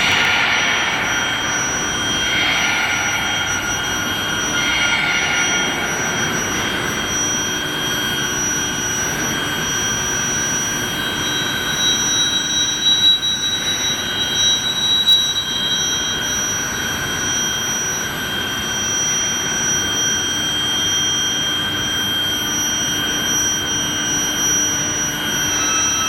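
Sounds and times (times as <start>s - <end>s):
steady machine din: 0.0s - 8.3s
high whining tones: 0.0s - 16.4s.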